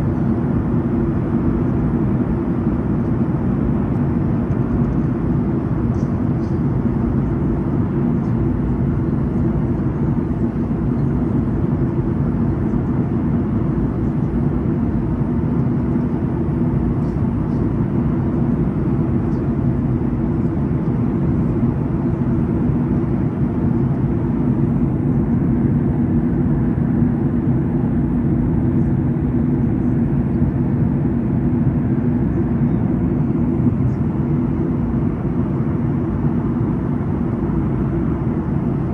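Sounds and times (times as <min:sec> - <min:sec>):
airliner cabin drone: 0:00.0 - 0:38.9.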